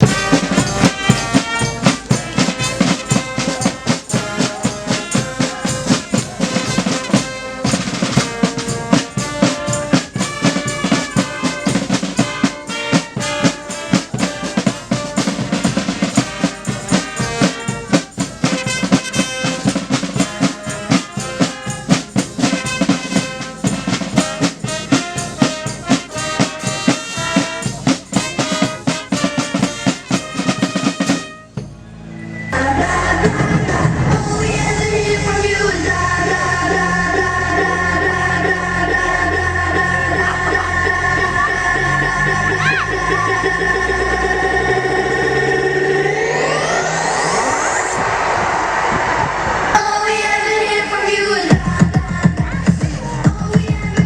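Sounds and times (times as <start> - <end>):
busy drums with rolls: 0.0 - 31.9, 32.6 - 36.9, 51.4 - 54.0.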